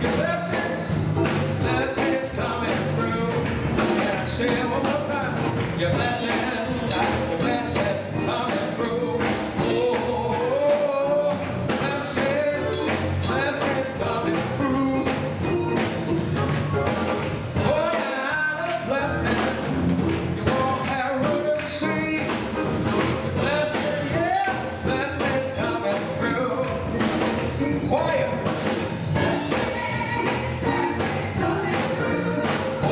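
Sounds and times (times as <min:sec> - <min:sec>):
gospel choir singing: 0:00.0 - 0:32.9
instrumental accompaniment: 0:00.0 - 0:32.9
percussion strokes: 0:00.0 - 0:32.9.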